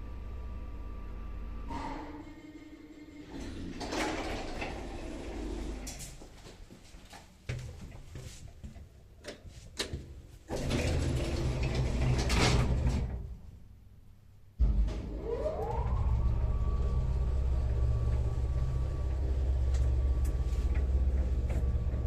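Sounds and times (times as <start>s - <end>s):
lift motor whine and hum: 0.0s - 6.3s, 14.6s - 22.0s
sliding door drive running: 3.0s - 6.0s, 10.5s - 13.3s, 14.6s - 22.0s.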